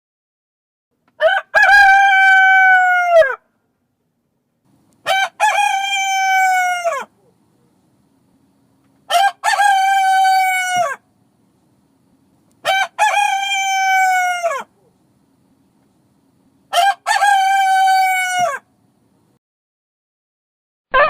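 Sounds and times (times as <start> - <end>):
rooster crowing: 1.2 - 3.5, 5.0 - 7.2, 9.1 - 11.0, 12.6 - 14.7, 16.7 - 18.7.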